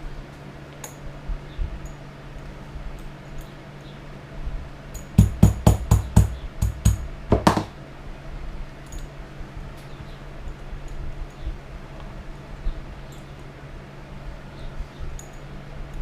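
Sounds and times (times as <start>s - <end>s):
mallet striking leather tool: 5.2s - 7.8s.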